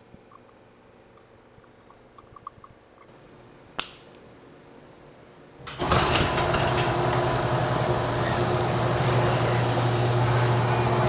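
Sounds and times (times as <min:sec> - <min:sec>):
mechanical running noise with hum: 0:05.6 - 0:11.0.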